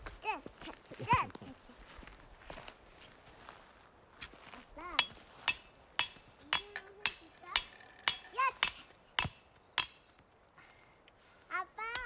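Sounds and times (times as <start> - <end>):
child's voice: 0.2 - 1.9, 4.5 - 5.0, 6.4 - 7.7, 8.3 - 8.8, 11.5 - 12.0
sharp metallic strikes: 5.0 - 10.0.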